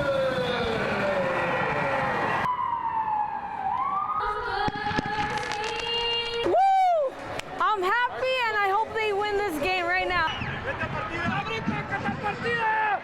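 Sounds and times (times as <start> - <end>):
sirens wailing: 0.0 - 4.7.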